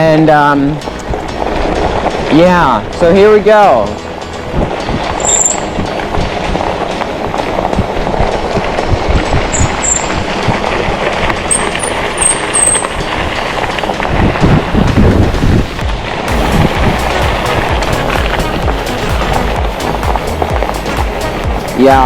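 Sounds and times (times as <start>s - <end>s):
tyres rumbling over ground: 0.0s - 22.0s
wind on microphone: 4.1s - 21.8s
short high squeaks: 5.2s - 5.7s, 9.5s - 10.2s.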